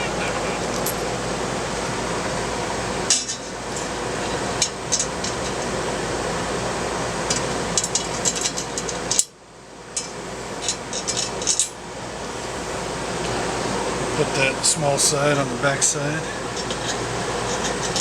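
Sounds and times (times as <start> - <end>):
steady background noise: 0.0 - 18.0
small metal parts clinking: 0.6 - 1.1.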